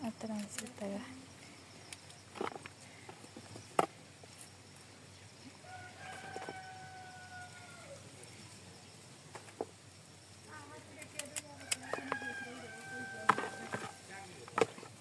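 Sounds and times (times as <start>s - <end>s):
rooster crowing: 5.6s - 8.1s, 11.6s - 14.0s.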